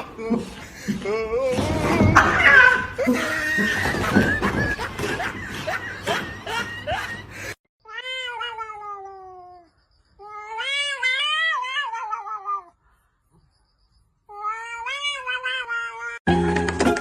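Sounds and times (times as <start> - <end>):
cat meowing: 7.9 - 12.8, 14.3 - 16.2.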